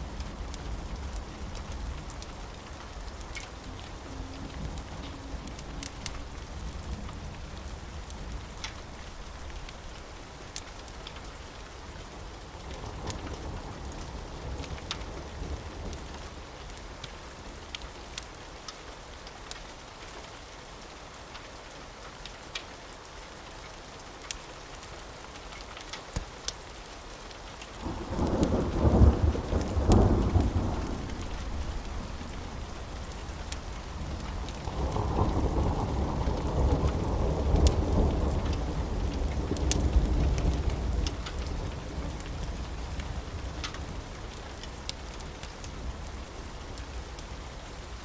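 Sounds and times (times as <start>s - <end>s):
steady rainfall: 0.0s - 48.0s
thunder rumbling: 27.8s - 44.4s.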